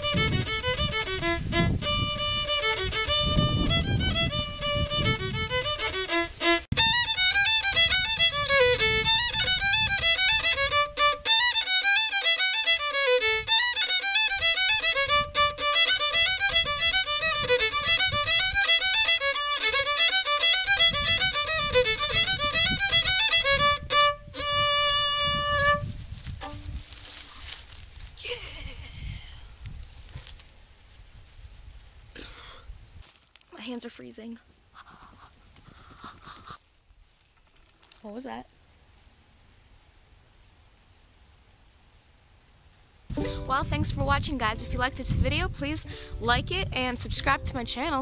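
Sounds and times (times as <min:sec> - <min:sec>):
solo violin playing: 0:00.0 - 0:26.8, 0:43.1 - 0:48.0.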